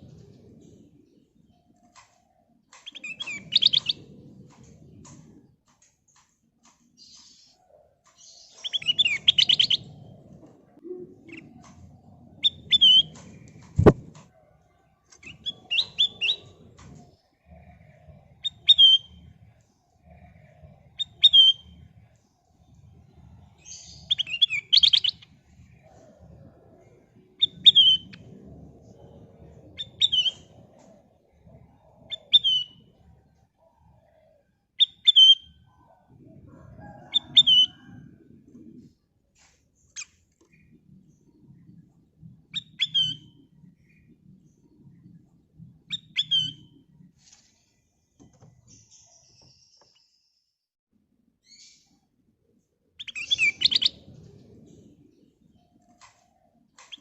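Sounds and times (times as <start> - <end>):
faint low rumble: 9.1 - 24.2, 25.2 - 34.4.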